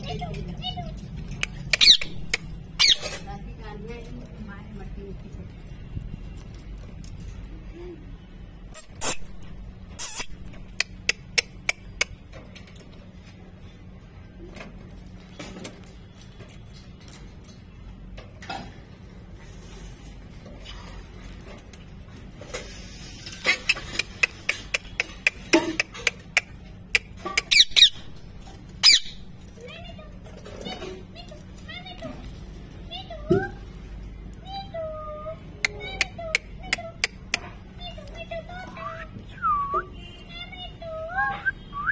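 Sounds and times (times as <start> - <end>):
parrot clicks and squeaks: 0.9 - 3.3, 8.7 - 12.3, 23.3 - 29.5
parrot high chirps: 1.4 - 3.3, 8.7 - 11.8, 26.4 - 28.2, 28.8 - 29.3.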